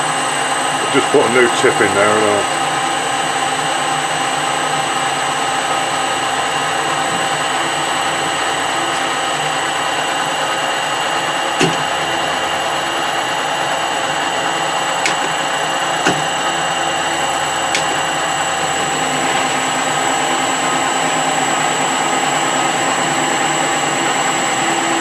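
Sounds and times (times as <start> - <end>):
metal lathe whining: 0.0 - 25.0
sharp clicks: 15.0 - 16.4.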